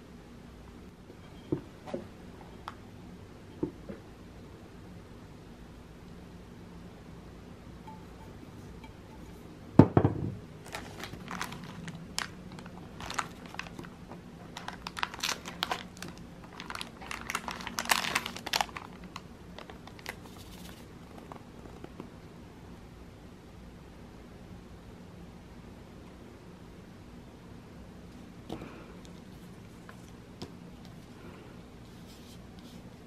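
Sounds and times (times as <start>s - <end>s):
crinkling and rustling: 10.6s - 22.1s, 28.2s - 31.2s.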